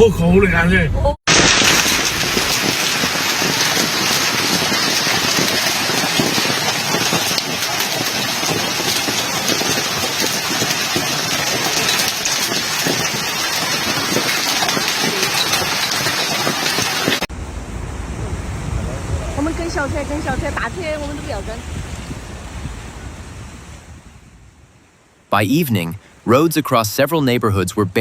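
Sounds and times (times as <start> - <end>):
hailstones pelting down: 1.3 - 17.3.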